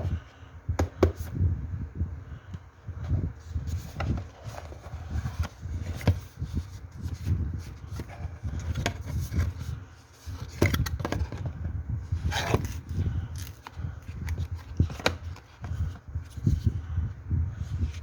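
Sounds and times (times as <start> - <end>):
handling scrapes and rustles: 3.0 - 11.5, 12.1 - 16.8.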